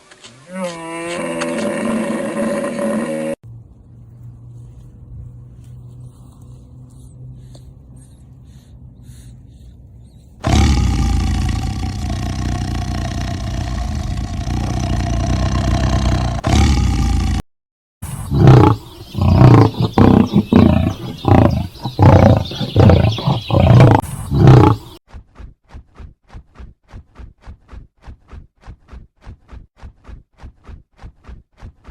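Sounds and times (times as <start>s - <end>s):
animal grunting calls: 10.4s - 17.4s, 18.0s - 25.0s
long held animal call: 18.0s - 25.0s.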